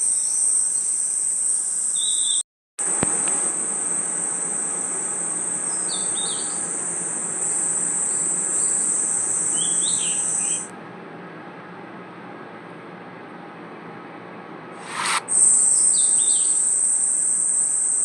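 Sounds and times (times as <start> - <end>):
crickets trilling: 0.0 - 10.7, 14.8 - 18.0
short falling chirps: 14.8 - 16.5.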